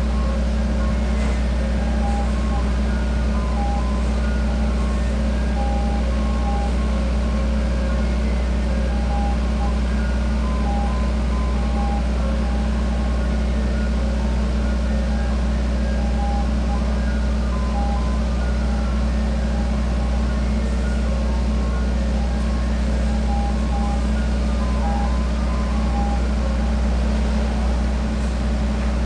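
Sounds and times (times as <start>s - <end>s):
ice cream truck chime jingle: 0.0s - 29.0s
truck engine humming: 0.0s - 29.0s.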